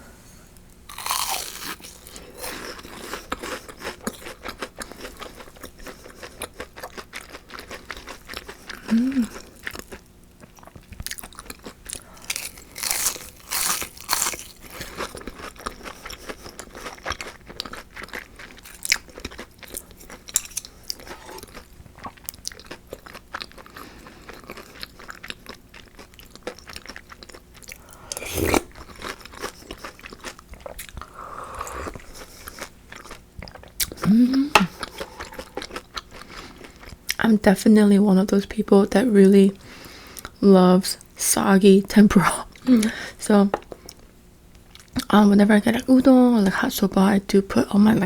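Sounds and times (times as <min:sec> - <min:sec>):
crunchy biting and chewing: 0:00.9 - 0:37.2.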